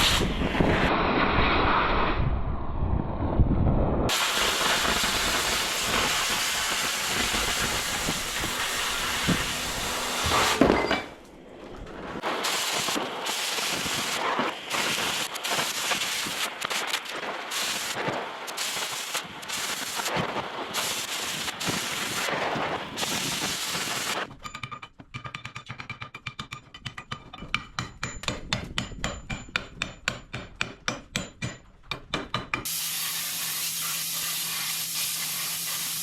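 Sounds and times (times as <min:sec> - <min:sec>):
low hum: 0:00.3 - 0:04.1
steady hiss: 0:04.1 - 0:10.6, 0:32.7 - 0:36.0.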